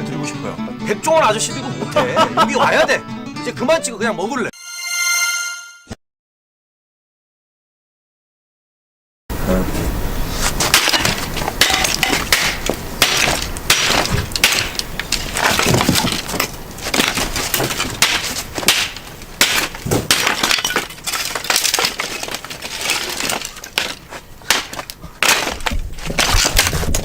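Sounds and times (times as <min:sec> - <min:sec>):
dry sticks snapping: 0:10.7 - 0:27.0.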